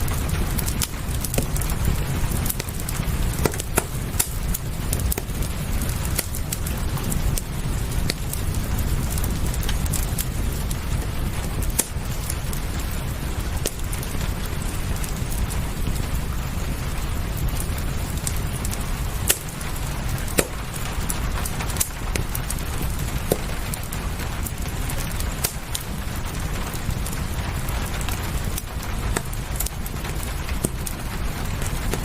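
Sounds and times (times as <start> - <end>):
steady rain: 0.0 - 32.0
wood fire crackling: 0.0 - 32.0.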